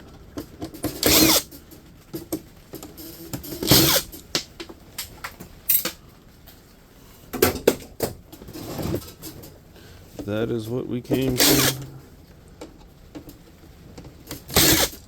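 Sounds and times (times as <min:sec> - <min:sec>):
power drill spinning up: 0:01.0 - 0:01.4, 0:14.5 - 0:15.0.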